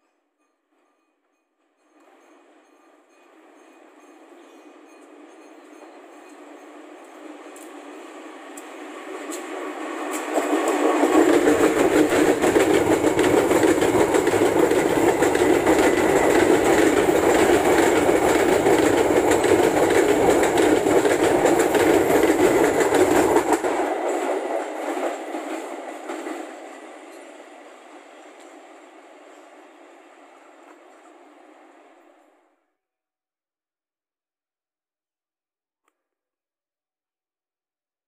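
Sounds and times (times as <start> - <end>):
wheels clattering on rails: 1.8 - 27.7
diesel locomotive passing: 1.8 - 32.6.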